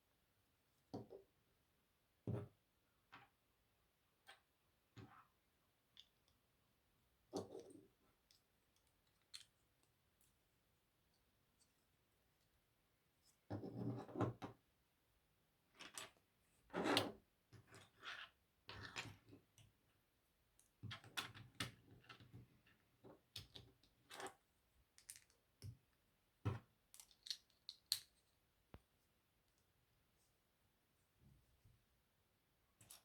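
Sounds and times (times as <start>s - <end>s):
plastic pieces clicking together: 26.9s - 28.2s.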